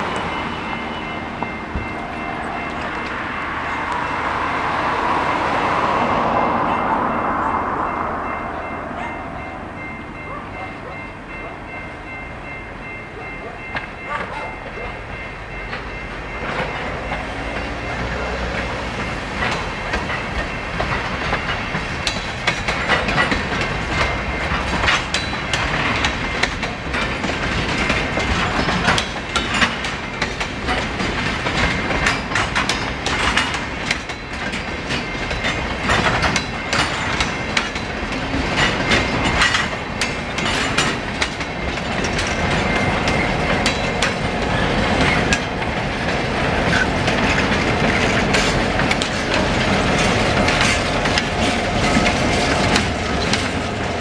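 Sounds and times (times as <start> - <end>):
crossing bell ringing: 0.0 - 54.0
train wheels clattering over rail joints: 15.5 - 54.0.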